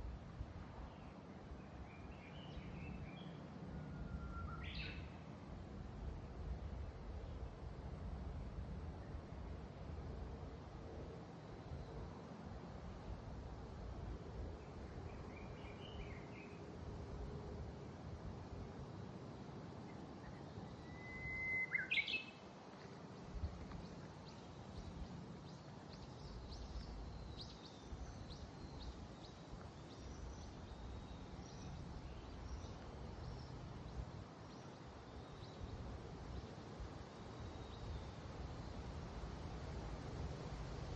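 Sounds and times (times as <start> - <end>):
faint high bird chirps: 1.8 - 5.1, 19.9 - 22.4
bird whistled call: 3.8 - 5.0, 20.8 - 22.4
wind rumble on microphone: 23.1 - 34.6.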